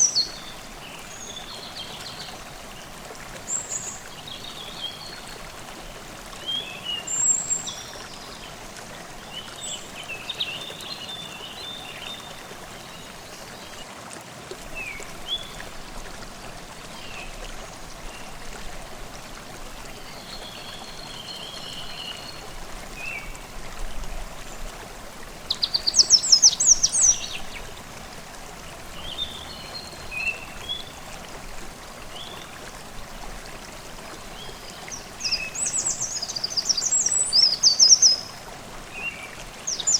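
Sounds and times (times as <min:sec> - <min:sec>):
stream babbling: 0:00.0 - 0:39.9
songbirds chirping: 0:19.9 - 0:31.2.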